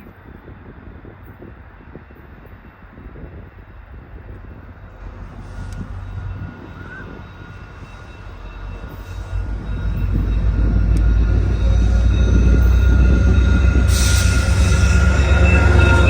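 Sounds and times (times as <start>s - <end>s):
train rumble: 0.0s - 16.0s
high-pitched whine tones: 4.6s - 16.0s.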